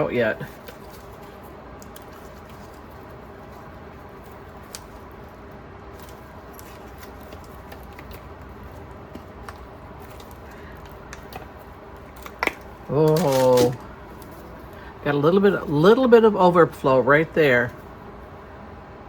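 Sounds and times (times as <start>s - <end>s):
silicone mold being flexed: 0.0s - 14.9s
low room hum: 0.0s - 19.0s.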